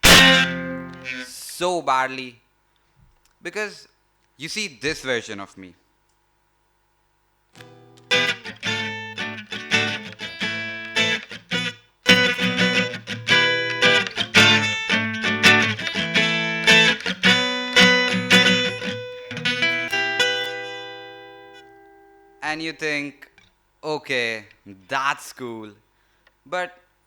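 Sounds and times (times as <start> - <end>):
guitar fast picked notes: 0.0 - 1.3, 7.6 - 22.4.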